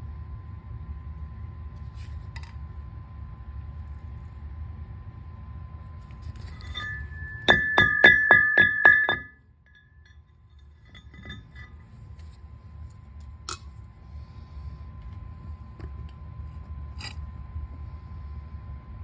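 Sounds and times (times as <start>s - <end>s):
hammer striking steel: 6.6s - 9.3s.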